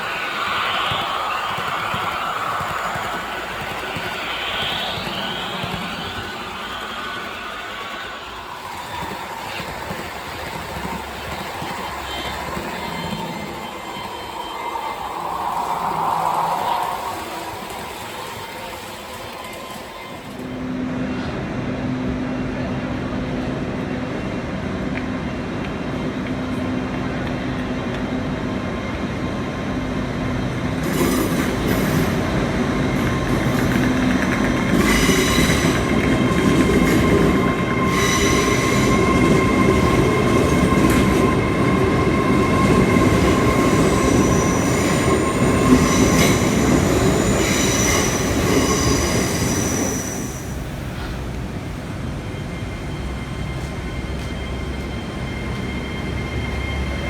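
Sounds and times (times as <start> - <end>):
high whining and squealing: 0.0 - 10.1, 11.8 - 20.3, 30.9 - 50.8
model train hum: 0.0 - 57.0.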